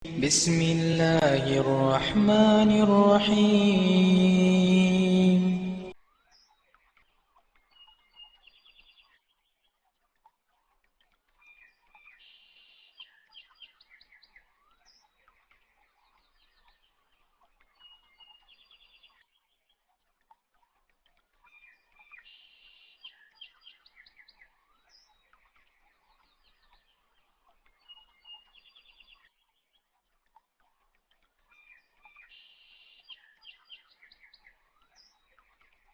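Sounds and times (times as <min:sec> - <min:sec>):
faint birds chirping and trilling: 0:11.3 - 0:20.0, 0:21.1 - 0:35.9.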